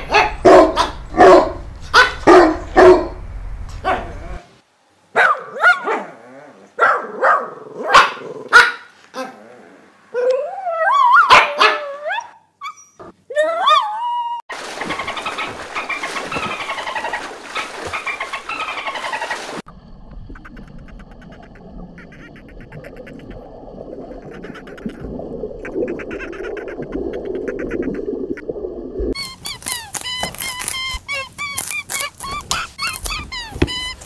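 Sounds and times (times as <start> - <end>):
rushing water: 14.5 - 29.2
underwater clicking: 20.0 - 29.2
high squeaky chirps: 20.3 - 25.0, 29.1 - 34.0.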